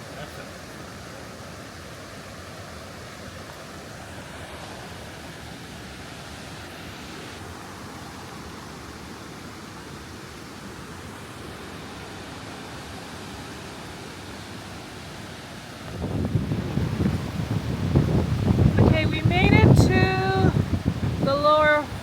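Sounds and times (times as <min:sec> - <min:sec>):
river cascade rushing: 0:00.0 - 0:22.0
wind buffeting microphone: 0:15.8 - 0:22.0.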